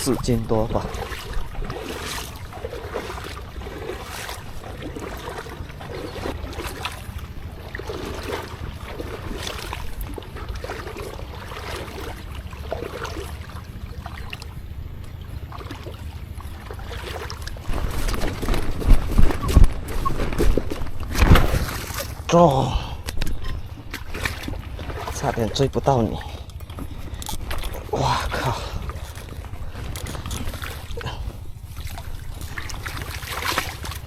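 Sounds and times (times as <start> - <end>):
water sloshing and splashing: 0.0 - 34.0
wind rumble on microphone: 0.0 - 34.0.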